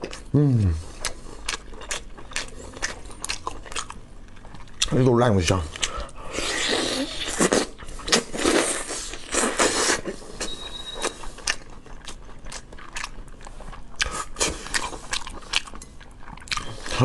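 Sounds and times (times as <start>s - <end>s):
person chewing meat: 0.0s - 17.0s.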